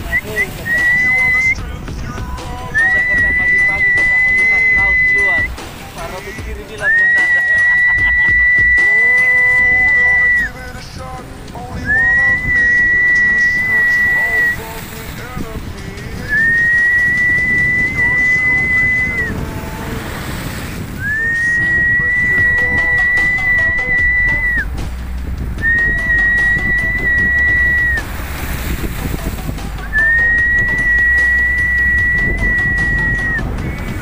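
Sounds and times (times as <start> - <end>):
high whistled notes: 0.0 - 1.6, 2.7 - 5.6, 6.8 - 10.6, 11.8 - 14.6, 16.2 - 19.4, 21.0 - 24.7, 25.6 - 28.1, 29.8 - 33.5
surf: 0.0 - 34.0
wind: 0.0 - 34.0.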